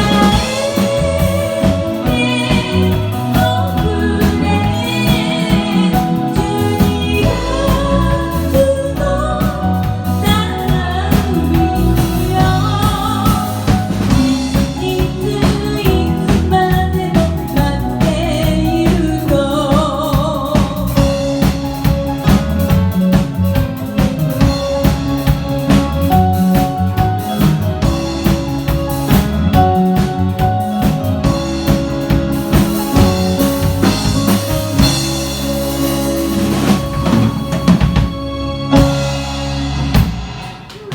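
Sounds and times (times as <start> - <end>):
person singing with vibrato: 0.0 - 21.2
pop band playing live: 0.0 - 40.9
steady drum beat: 0.0 - 40.9.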